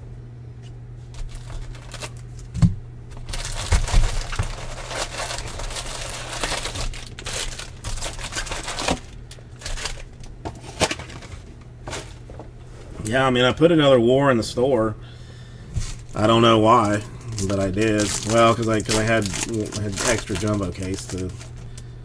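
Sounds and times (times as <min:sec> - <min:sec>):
wrapper tearing and crinkling: 0:01.2 - 0:02.5, 0:03.1 - 0:12.2, 0:15.8 - 0:21.8.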